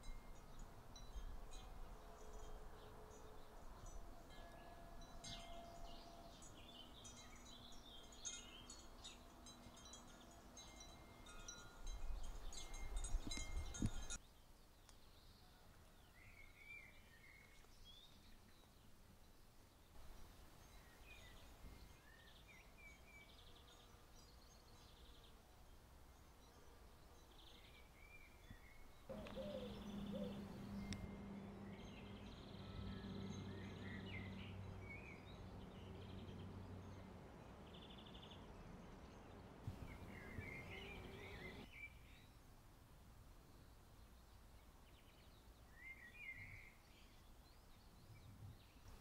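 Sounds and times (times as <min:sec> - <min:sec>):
bird chirps and trills: 0:28.4 - 0:38.5, 0:39.1 - 0:42.0
low steady hum: 0:28.7 - 0:41.7.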